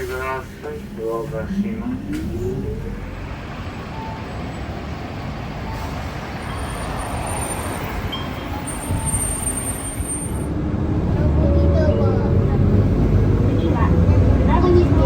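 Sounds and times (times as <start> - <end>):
bus diesel engine rumble: 0.0 - 15.0.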